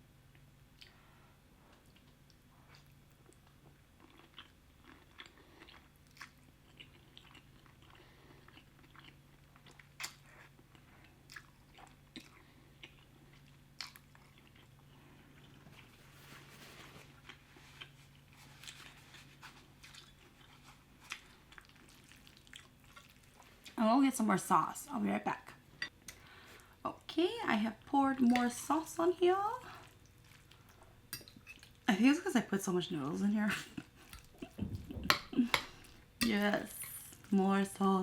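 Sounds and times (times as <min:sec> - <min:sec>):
faint steady hum: 0:00.0 - 0:38.0
person chewing: 0:01.7 - 0:16.2, 0:17.1 - 0:23.8, 0:29.8 - 0:31.8, 0:33.7 - 0:36.2.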